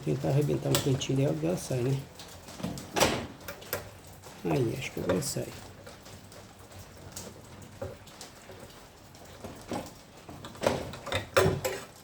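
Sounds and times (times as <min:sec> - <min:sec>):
plastic clicks and knocks: 0:09.4 - 0:11.8.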